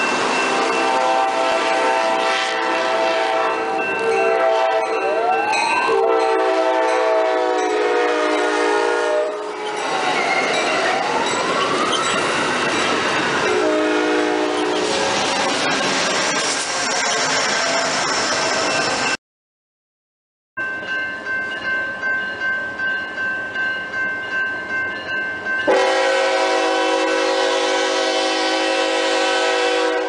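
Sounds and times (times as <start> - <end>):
train coaches rushing past: 0.0 - 19.2
train horn blasts: 0.5 - 9.8, 13.5 - 14.9, 25.7 - 30.0.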